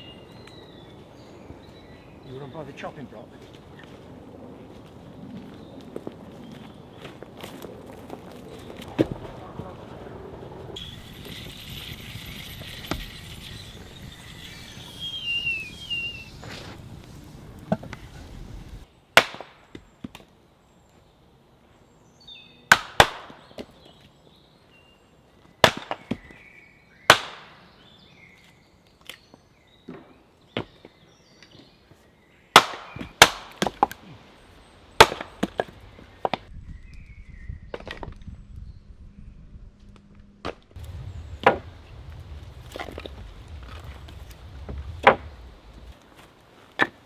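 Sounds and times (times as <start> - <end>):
outdoor background hiss: 10.6 - 23.5, 27.6 - 36.4, 40.8 - 47.0.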